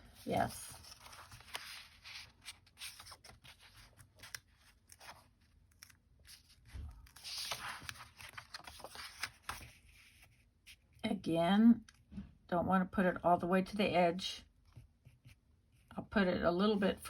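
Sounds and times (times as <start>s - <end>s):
paper rustling: 0.2s - 10.9s.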